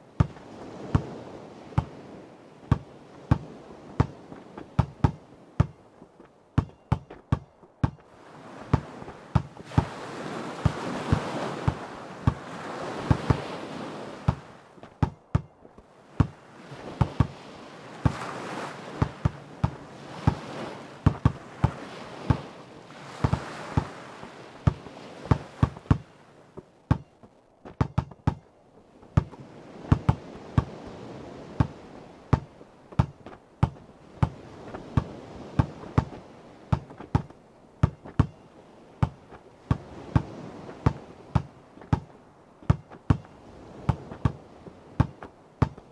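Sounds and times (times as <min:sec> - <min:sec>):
ocean waves washing: 0:00.0 - 0:45.9
basketball bouncing: 0:00.2 - 0:01.1, 0:02.7 - 0:05.8, 0:06.6 - 0:08.0, 0:08.7 - 0:10.0, 0:14.3 - 0:15.5, 0:21.0 - 0:22.5, 0:24.7 - 0:26.0, 0:26.9 - 0:27.1, 0:27.7 - 0:28.5, 0:29.2 - 0:30.7, 0:32.3 - 0:34.4, 0:35.0 - 0:38.4, 0:39.0 - 0:42.1, 0:42.7 - 0:43.3, 0:45.0 - 0:45.8.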